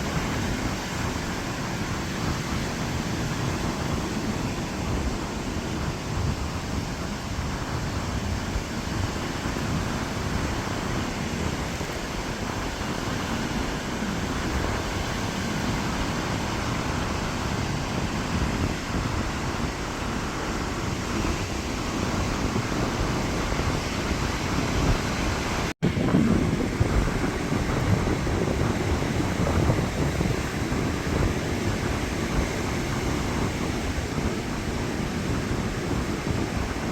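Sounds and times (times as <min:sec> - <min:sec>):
surf breaking on a beach: 0:00.0 - 0:36.9
wind rumbling on microphone: 0:00.0 - 0:36.9.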